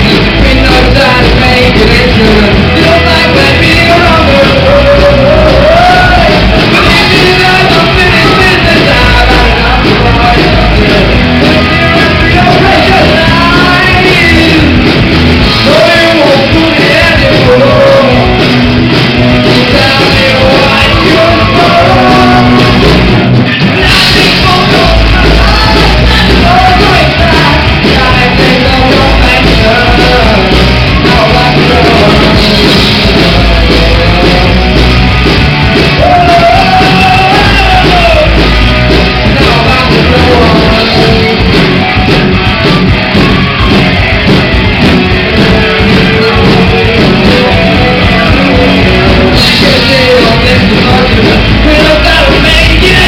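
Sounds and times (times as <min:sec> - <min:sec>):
sung and shouted vocals: 0:00.0 - 0:35.0, 0:35.7 - 0:42.2, 0:45.2 - 0:53.0
live rock band playing: 0:00.0 - 0:53.0.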